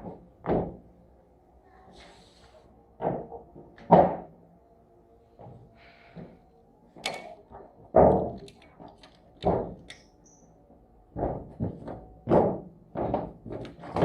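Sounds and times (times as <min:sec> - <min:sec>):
irregular knocks and thuds: 0:00.0 - 0:00.8, 0:09.4 - 0:09.9, 0:11.1 - 0:14.0.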